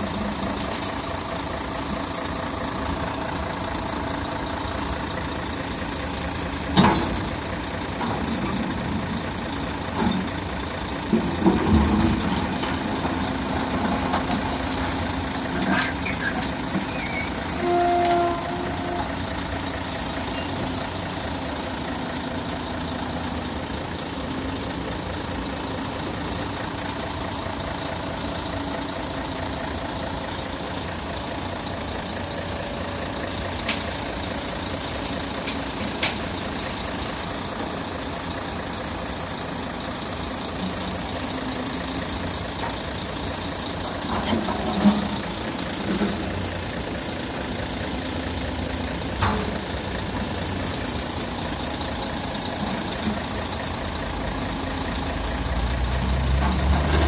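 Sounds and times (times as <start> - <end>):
diesel machinery running: 0.0 - 57.0.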